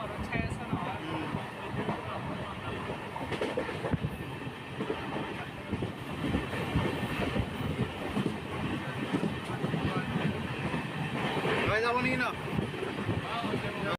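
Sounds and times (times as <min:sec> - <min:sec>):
train running on track: 0:00.0 - 0:13.9.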